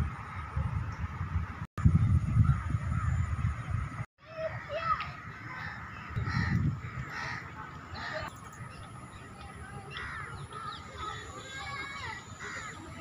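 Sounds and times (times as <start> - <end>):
birds calling harshly: 4.3 - 13.0.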